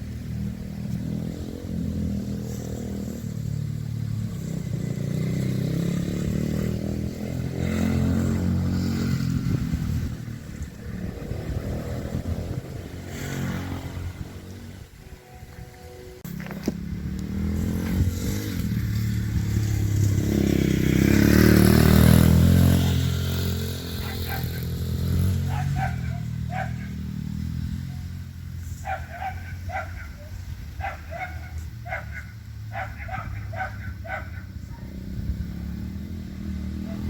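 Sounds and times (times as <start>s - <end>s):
dirt bike engine running: 0.0s - 15.6s, 16.2s - 37.0s
dog barking: 23.9s - 24.8s, 25.4s - 27.0s, 28.8s - 34.9s, 36.8s - 37.0s.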